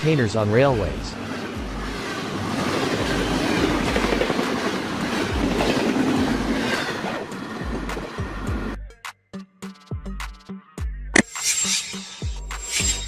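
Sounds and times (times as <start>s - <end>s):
train wheels on rails: 1.1s - 8.4s.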